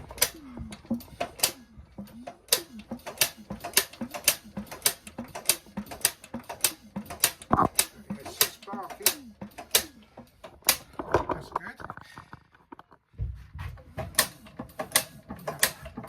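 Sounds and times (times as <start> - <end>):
ignition spark snapping ticks: 1.2 - 1.6, 2.3 - 10.9, 14.2 - 15.8.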